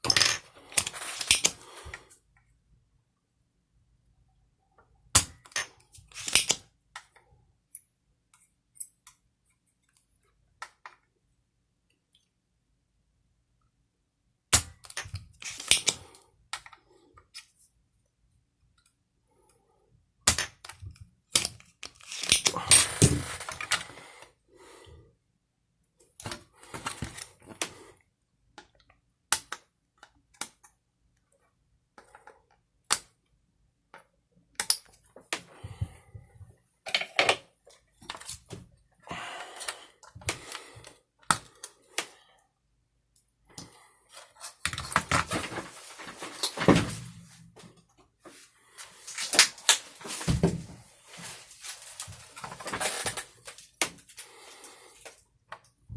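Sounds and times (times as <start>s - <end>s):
small parts and tools clicking: 0.0s - 2.0s, 5.2s - 7.8s, 14.6s - 17.6s, 20.3s - 23.9s.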